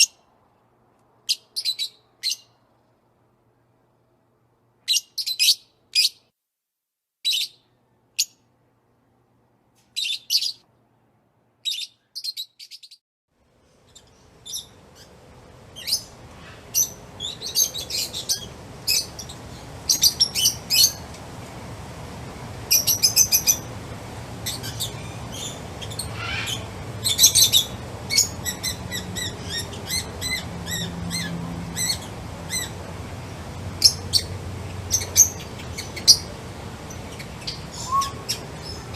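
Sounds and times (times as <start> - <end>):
steady background hiss: 13.4 - 38.9
songbirds chirping: 13.6 - 38.9.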